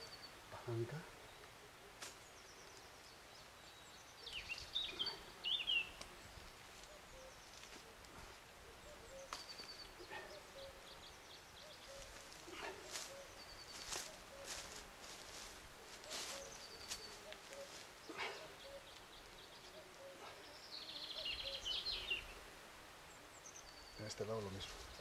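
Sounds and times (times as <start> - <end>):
songbird chirping: 0.0 - 25.0
rustling: 11.6 - 20.0.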